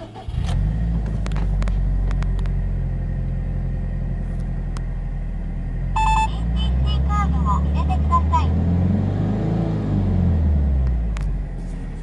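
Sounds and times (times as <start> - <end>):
car engine idling: 0.0 - 8.5.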